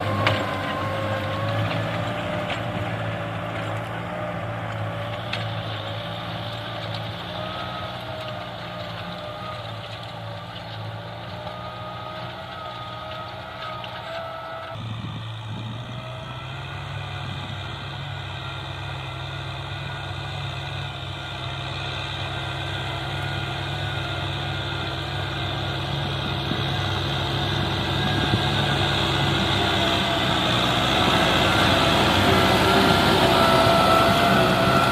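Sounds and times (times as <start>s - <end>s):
tractor engine running: 0.0s - 34.9s
thin whine climbing in pitch: 24.2s - 34.9s.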